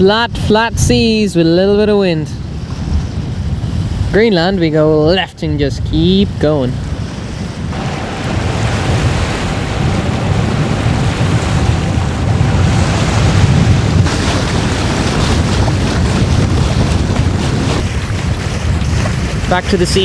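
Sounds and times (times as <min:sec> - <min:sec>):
wind buffeting microphone: 0:00.4 - 0:20.0
water washing along hull: 0:06.9 - 0:20.0.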